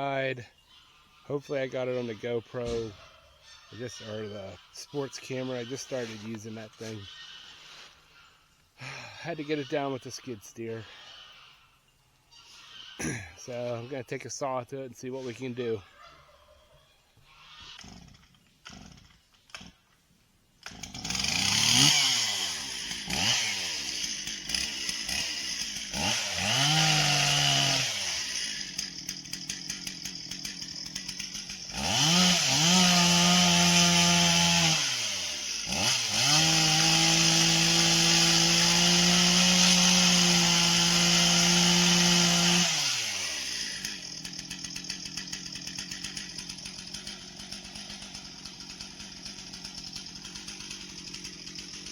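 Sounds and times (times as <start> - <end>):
chainsaw revving: 13.0 - 13.7, 17.7 - 19.8, 20.6 - 51.9.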